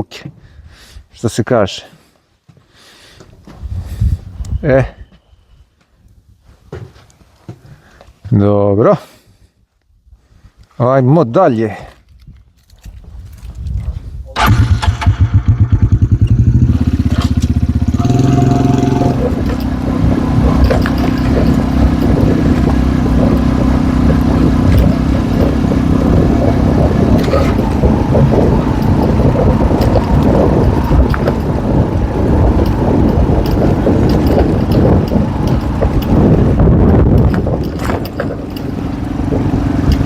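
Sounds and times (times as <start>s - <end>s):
rough road noise: 3.0s - 5.1s, 11.1s - 40.0s
wind noise: 3.4s - 6.6s, 12.0s - 40.0s
motorcycle engine running: 14.5s - 40.0s.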